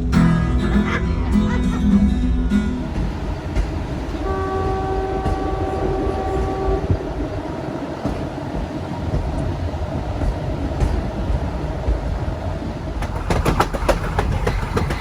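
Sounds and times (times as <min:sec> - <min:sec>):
moving train rumble: 0:00.0 - 0:15.0
train horn held note: 0:04.2 - 0:07.0.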